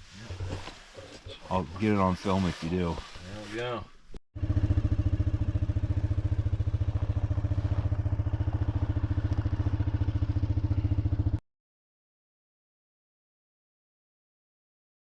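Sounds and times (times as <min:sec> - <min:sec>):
small gas engine running: 0:04.4 - 0:11.4.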